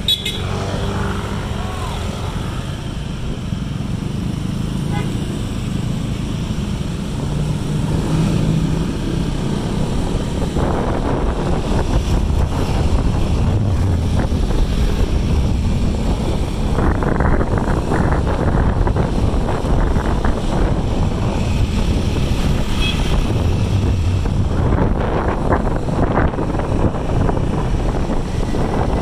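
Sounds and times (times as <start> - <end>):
wind buffeting microphone: 5.8 - 29.0
low rumble: 10.5 - 29.0.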